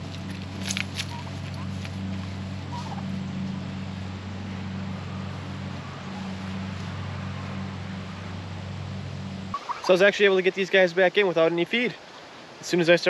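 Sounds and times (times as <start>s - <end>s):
faint hiss: 9.6s - 13.0s.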